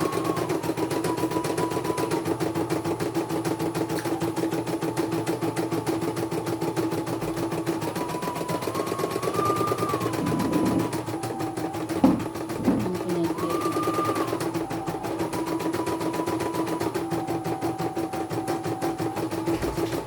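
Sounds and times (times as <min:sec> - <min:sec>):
machine whine: 0:00.0 - 0:20.0
motor hum: 0:00.0 - 0:20.0
embroidery machine needle rattle: 0:07.1 - 0:15.6.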